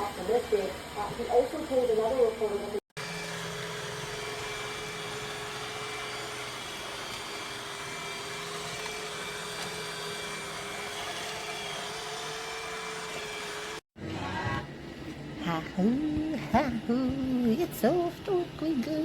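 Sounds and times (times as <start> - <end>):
motor whirring: 3.0 - 13.8.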